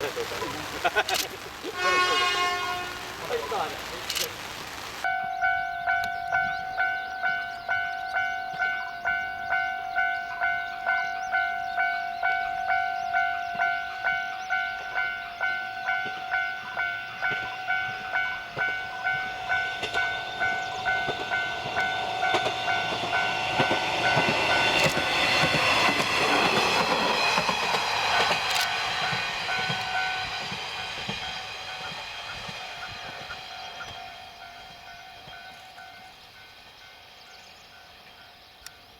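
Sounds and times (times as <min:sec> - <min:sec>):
diesel railcar passing: 0:00.0 - 0:38.9
level crossing bell ringing: 0:05.1 - 0:26.1.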